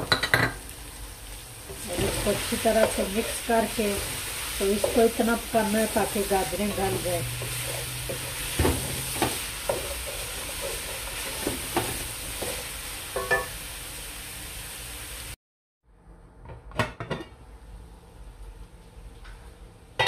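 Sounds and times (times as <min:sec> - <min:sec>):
meat and carrots sizzling in pot: 0:00.0 - 0:15.4.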